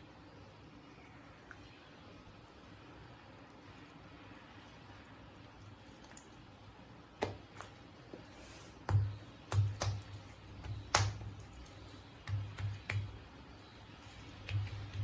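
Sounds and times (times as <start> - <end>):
dough slapping on work surface: 7.2 - 7.8, 8.8 - 13.4, 14.1 - 15.0.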